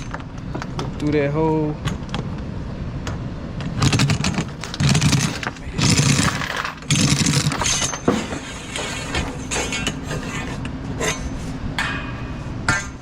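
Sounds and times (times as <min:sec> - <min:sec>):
steady low rumble: 0:00.0 - 0:07.6
steel chain clinking and rattling: 0:03.8 - 0:10.2.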